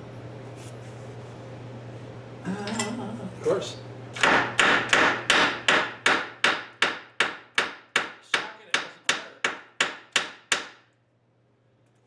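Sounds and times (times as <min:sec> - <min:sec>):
hammer striking metal: 0:04.2 - 0:10.8.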